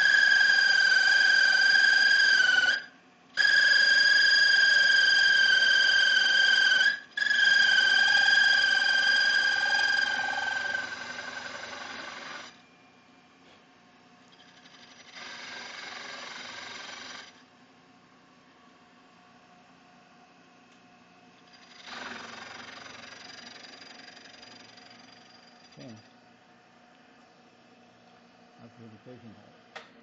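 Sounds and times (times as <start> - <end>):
milling cutter squealing: 0.0 - 12.6.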